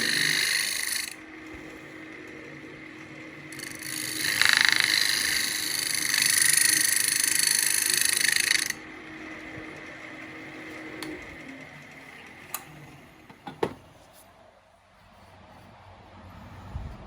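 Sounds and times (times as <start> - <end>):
power screwdriver pulsing: 0.0 - 1.8, 3.5 - 8.9.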